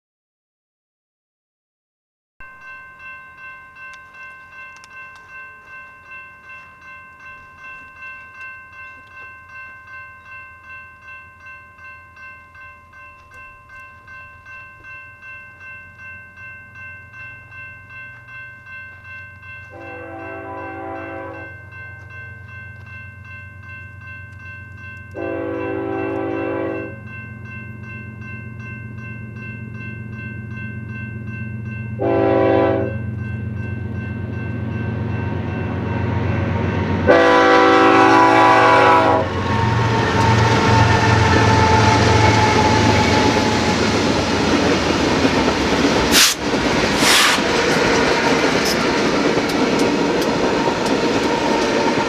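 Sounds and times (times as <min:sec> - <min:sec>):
train air horn blasts: 0:19.7 - 0:21.5, 0:25.2 - 0:27.0, 0:32.0 - 0:33.0, 0:37.1 - 0:43.7, 0:46.1 - 0:47.8
freight cars rolling on rails: 0:39.1 - 0:52.0.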